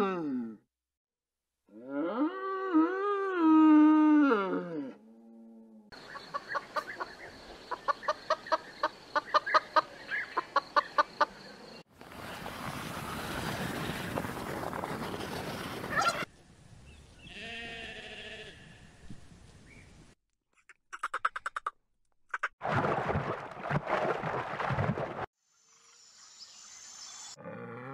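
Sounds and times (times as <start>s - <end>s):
rustling noise: 11.9s - 16.3s
sheep bleating: 17.3s - 18.7s.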